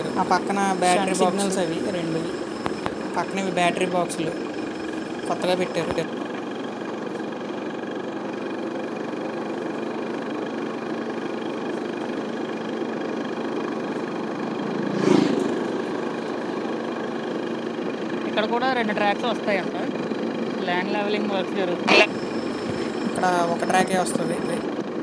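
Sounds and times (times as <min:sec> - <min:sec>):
road noise: 0:00.0 - 0:25.0
vehicle engine hum: 0:00.0 - 0:25.0.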